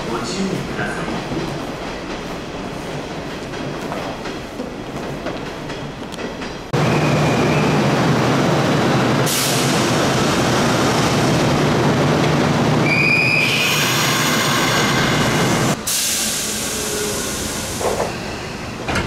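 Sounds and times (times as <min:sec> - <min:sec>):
train low hum: 0:00.0 - 0:19.0
train doors air hiss: 0:09.3 - 0:10.0, 0:13.4 - 0:19.0.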